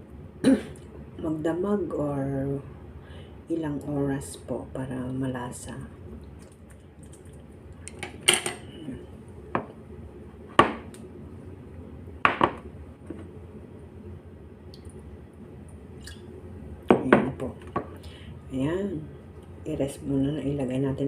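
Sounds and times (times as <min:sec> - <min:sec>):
dishes and utensils clinking: 0:07.9 - 0:08.7.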